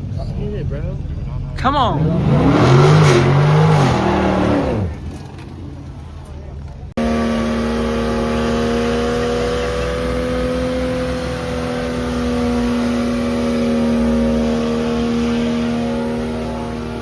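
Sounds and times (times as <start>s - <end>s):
truck engine revving high: 0.0s - 17.0s.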